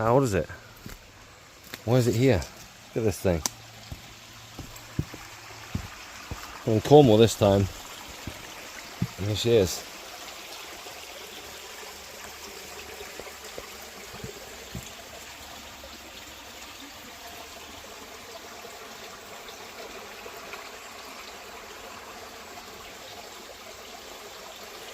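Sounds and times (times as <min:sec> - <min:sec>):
water running: 0:01.6 - 0:15.7.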